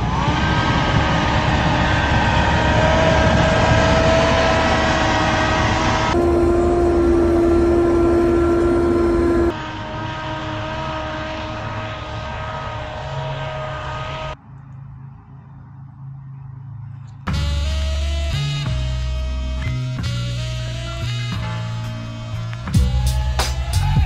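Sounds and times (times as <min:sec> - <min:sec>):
earth-moving machine engine running: 0:00.0 - 0:14.4
steady whine: 0:00.0 - 0:14.4, 0:17.6 - 0:24.0.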